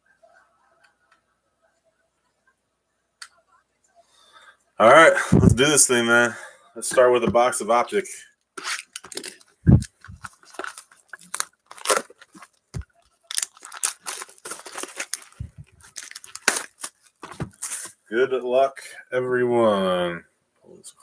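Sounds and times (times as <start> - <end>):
cardboard rustling: 8.6 - 18.0
plastic wrap tearing and crinkling: 8.6 - 18.0.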